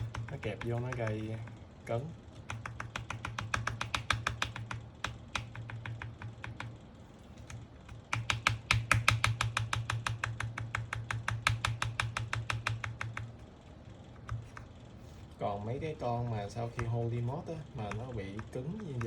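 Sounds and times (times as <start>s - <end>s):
keyboard key clacking: 0.0s - 1.5s, 2.4s - 6.7s, 7.4s - 13.3s.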